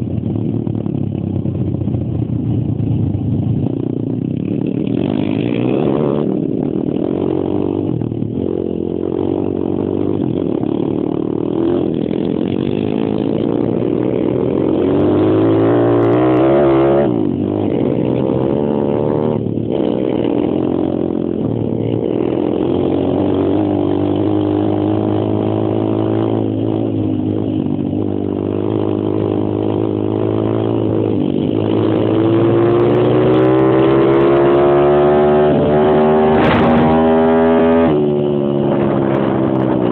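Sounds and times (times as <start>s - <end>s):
pit bike engine revving: 4.5s - 39.9s.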